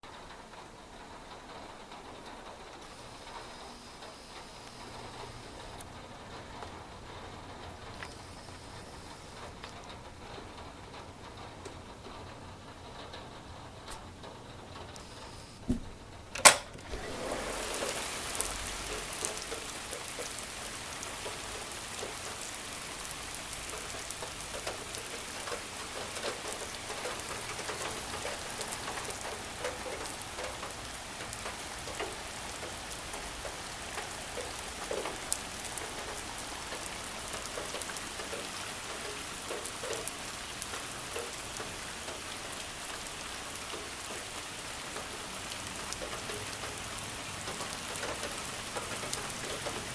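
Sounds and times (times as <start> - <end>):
steady rain falling: 0.0 - 49.9
sharp click: 15.7 - 16.8.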